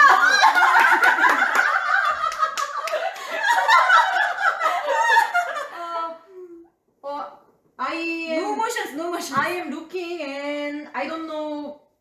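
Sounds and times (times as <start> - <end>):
women laughing: 0.0 - 6.2
hand claps: 0.5 - 3.4.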